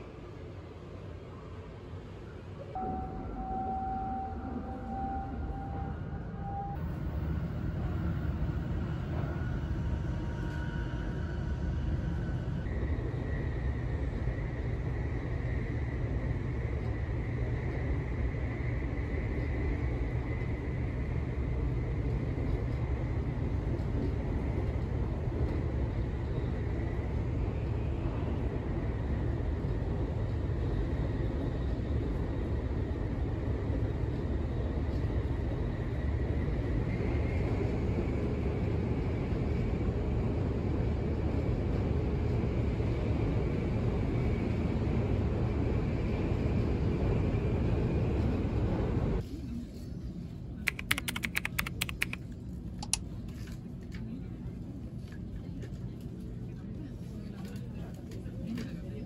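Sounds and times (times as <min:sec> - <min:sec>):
train interior rumble: 0:00.0 - 0:59.0
faint high whine: 0:02.2 - 0:21.8.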